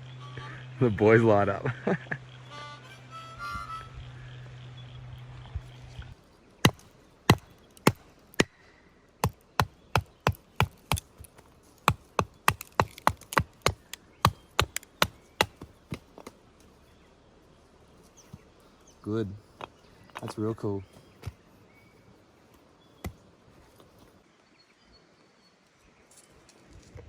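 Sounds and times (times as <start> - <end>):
harmonica tune: 0.0 - 1.2, 2.3 - 4.5
wood chopping strikes: 6.6 - 16.4, 19.5 - 21.4, 22.5 - 23.9.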